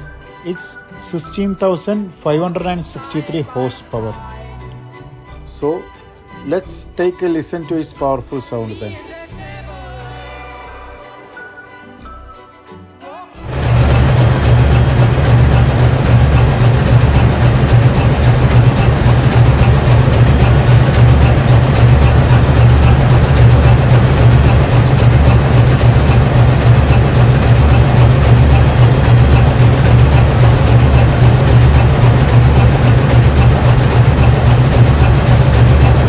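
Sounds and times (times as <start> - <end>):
ship diesel engine droning: 13.4 - 36.0
fast regular ticking: 13.5 - 36.0.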